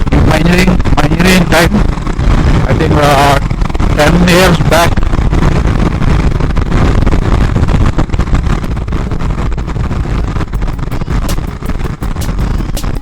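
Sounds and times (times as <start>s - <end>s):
motorcycle engine: 0.0s - 13.0s
road noise: 0.0s - 13.0s
short crackles: 0.0s - 13.0s
wind buffeting microphone: 0.0s - 13.0s.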